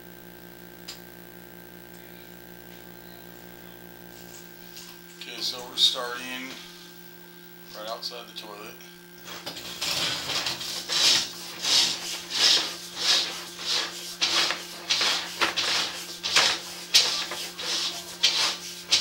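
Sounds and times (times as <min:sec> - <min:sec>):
steady electrical hum: 0:00.0 - 0:19.0
cable rubbing and scraping: 0:09.2 - 0:19.0.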